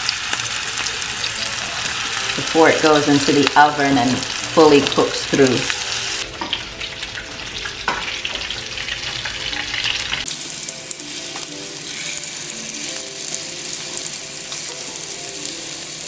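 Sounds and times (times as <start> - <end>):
meatballs sizzling in frying pan: 0.0 - 16.0.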